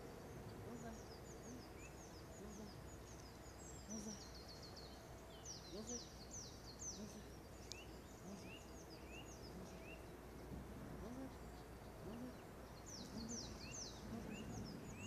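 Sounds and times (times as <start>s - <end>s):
birds singing: 0.0s - 15.0s.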